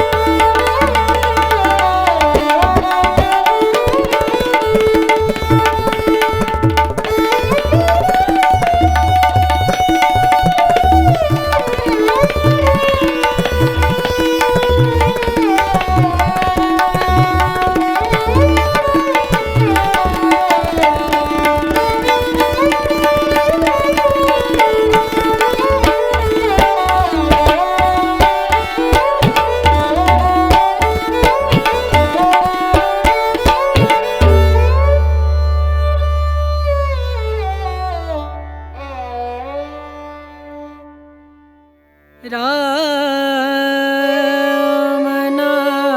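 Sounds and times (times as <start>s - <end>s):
tabla rhythm: 0.0s - 39.5s.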